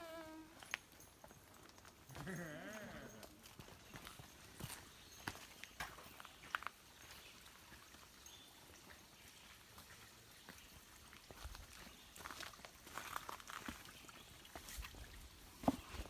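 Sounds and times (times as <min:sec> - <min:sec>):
footsteps on dirt trail: 0:00.5 - 0:10.0.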